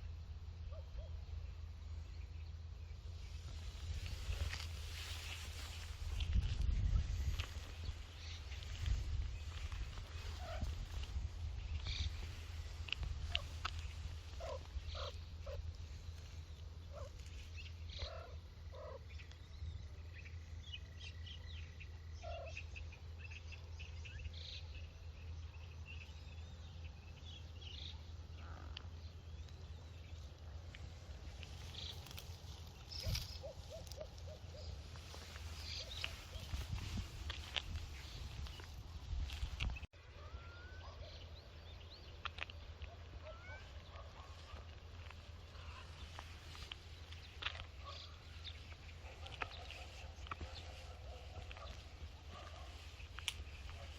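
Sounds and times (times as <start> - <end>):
steady low rumble: 0.0 - 39.9.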